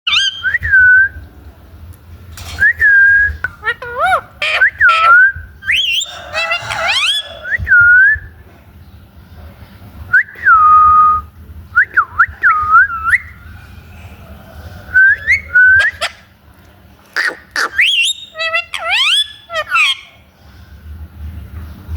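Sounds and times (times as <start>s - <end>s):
parrot whistling: 0.0s - 1.1s, 2.7s - 8.1s, 14.9s - 16.2s, 17.2s - 20.2s
harsh parrot call: 3.6s - 7.7s, 17.2s - 20.3s.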